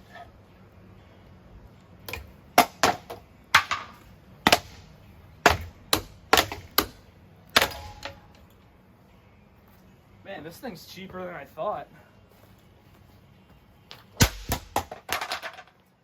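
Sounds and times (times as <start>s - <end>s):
ceiling fan being smashed: 2.1s - 8.3s, 14.2s - 15.7s.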